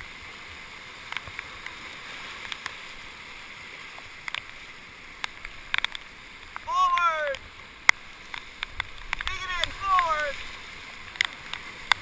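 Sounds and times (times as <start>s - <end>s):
light taps and splashes: 1.0s - 6.7s, 7.3s - 12.0s
whitewater rushing: 6.7s - 7.4s, 9.2s - 11.2s.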